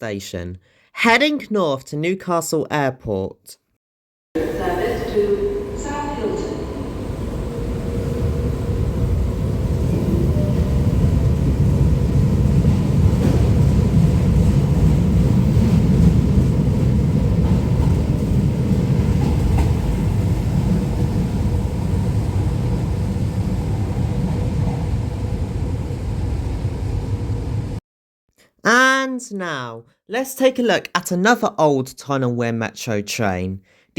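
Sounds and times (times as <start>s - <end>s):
electric train pulling out: 4.4s - 27.8s.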